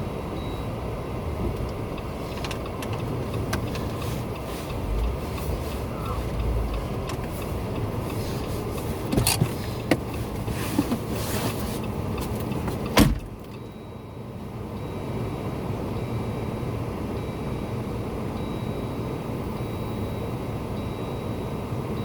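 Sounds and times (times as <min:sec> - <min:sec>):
vehicle engine running: 0:00.0 - 0:13.8.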